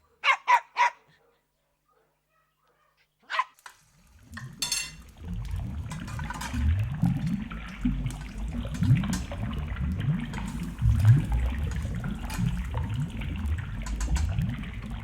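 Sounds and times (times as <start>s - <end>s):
water sloshing in a sink: 3.6s - 15.0s.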